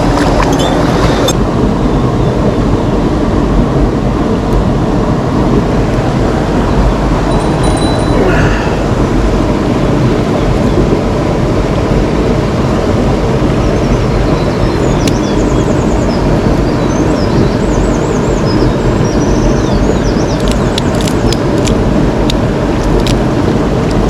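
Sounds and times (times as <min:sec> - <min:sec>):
mountain stream rushing: 0:00.0 - 0:01.4.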